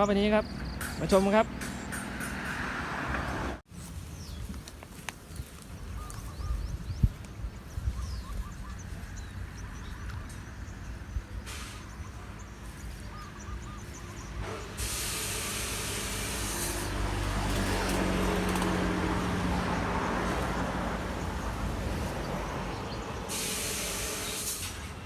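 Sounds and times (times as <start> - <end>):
vehicle passing close by: 0.5 - 3.6, 13.9 - 25.0.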